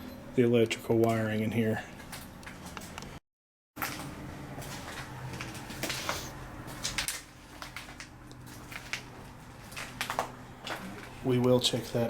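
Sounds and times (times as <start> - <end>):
footsteps crunching over debris: 3.8 - 12.0.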